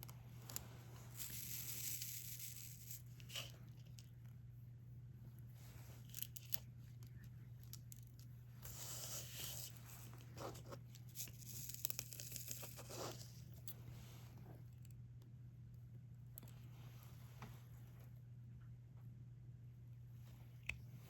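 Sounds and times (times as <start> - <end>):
low steady hum: 0.0 - 21.0
drill pen clicks and crinkling: 6.0 - 13.7.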